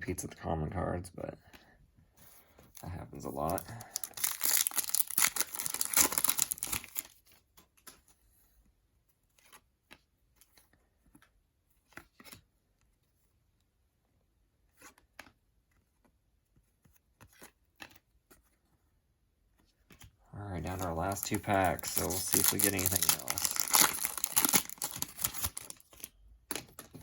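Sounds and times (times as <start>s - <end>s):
foil wrapper crinkling and tearing: 3.2s - 7.2s, 20.5s - 27.0s.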